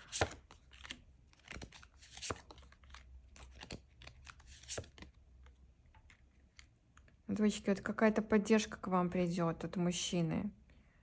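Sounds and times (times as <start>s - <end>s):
cards clicking and rustling: 0.0s - 6.7s.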